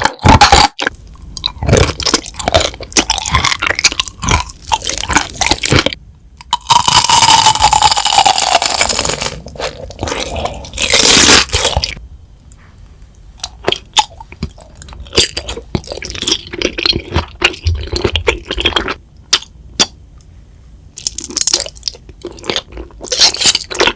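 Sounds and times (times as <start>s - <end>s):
crunchy bites and chewing: 0.0s - 12.0s, 13.4s - 20.0s, 21.0s - 23.9s.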